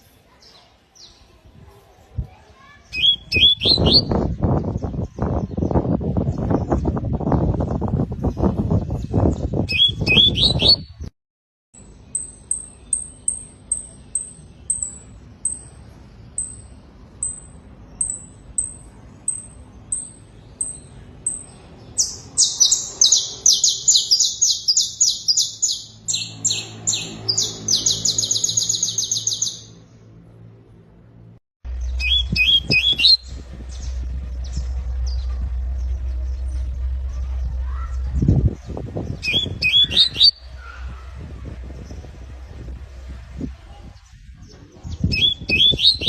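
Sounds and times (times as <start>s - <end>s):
canary singing: 2.8s - 6.9s, 8.3s - 11.1s, 11.8s - 29.8s, 31.7s - 43.4s, 44.0s - 46.0s
brief low rumble: 31.7s - 45.1s.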